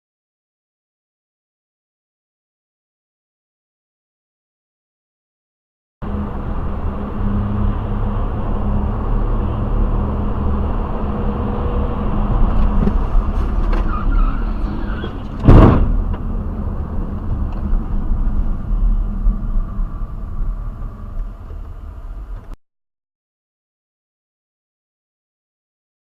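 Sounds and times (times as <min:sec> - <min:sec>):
car road and engine rumble: 0:06.0 - 0:22.6
loud collision bang: 0:15.4 - 0:16.1.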